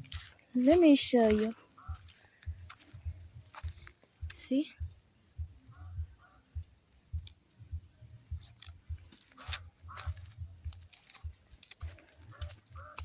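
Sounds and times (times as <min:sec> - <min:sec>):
crackling rustles: 0:00.0 - 0:04.3, 0:08.3 - 0:13.0
footsteps through vegetation: 0:00.0 - 0:04.6, 0:08.3 - 0:13.0.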